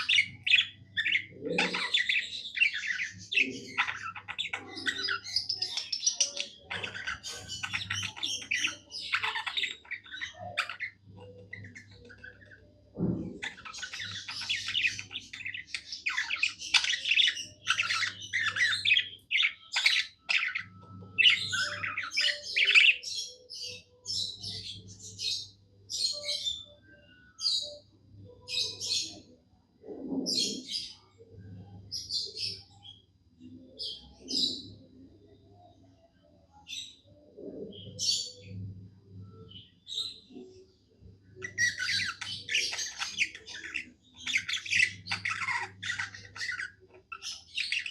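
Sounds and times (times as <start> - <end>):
budgerigar chirping: 13.4 - 23.0, 41.4 - 47.9.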